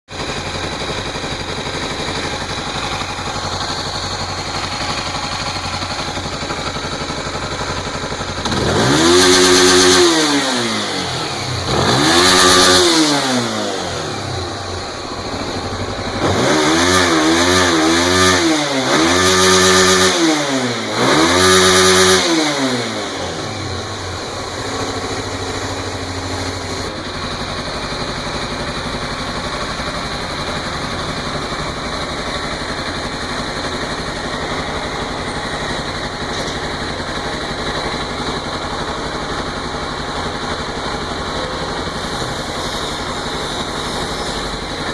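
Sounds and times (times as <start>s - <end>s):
motorcycle engine idling and revving: 0.0s - 44.9s.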